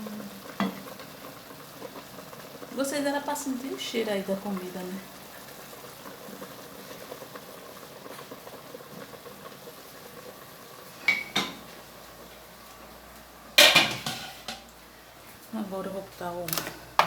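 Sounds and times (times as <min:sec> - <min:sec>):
low kitchen background: 0:00.0 - 0:17.0
metal cookware clinking: 0:11.0 - 0:11.6, 0:13.6 - 0:14.6.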